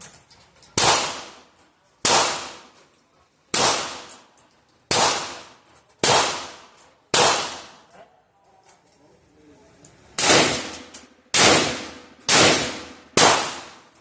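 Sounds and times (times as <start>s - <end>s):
rifle shots: 0.8s - 1.4s, 2.0s - 2.7s, 3.5s - 4.1s, 4.9s - 7.8s, 10.2s - 13.8s.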